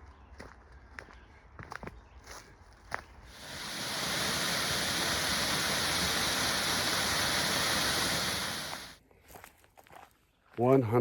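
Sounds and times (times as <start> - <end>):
rushing water: 3.3 - 9.0.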